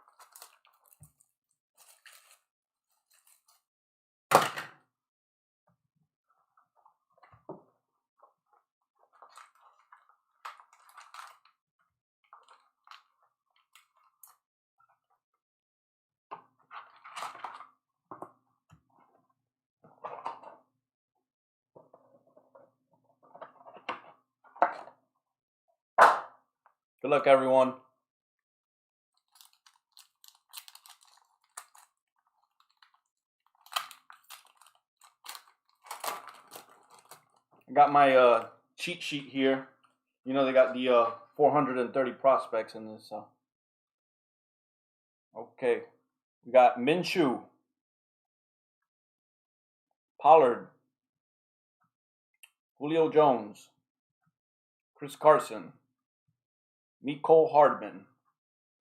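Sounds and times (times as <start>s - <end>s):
plastic wrap and cardboard crinkling: 0.0s - 3.6s, 9.1s - 11.6s, 29.2s - 37.6s.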